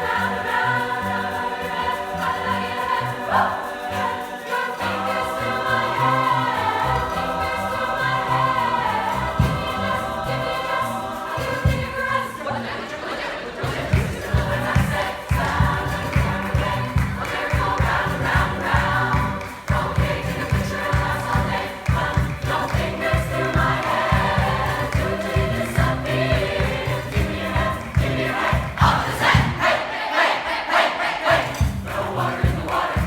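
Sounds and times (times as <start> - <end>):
choir singing: 0.0 - 33.0
pulsing low beat: 13.8 - 29.6.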